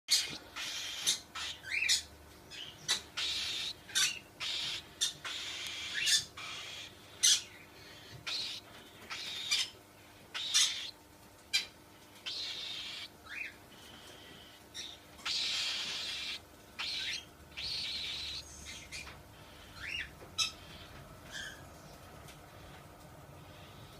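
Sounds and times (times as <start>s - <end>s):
cockatiel chirps and squawks: 0.1s - 7.5s, 8.3s - 9.7s, 10.4s - 10.9s, 14.8s - 18.9s.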